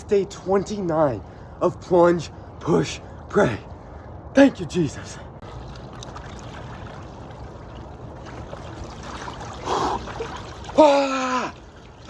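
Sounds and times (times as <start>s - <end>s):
flowing water: 5.2s - 12.0s
man groaning: 10.8s - 11.6s.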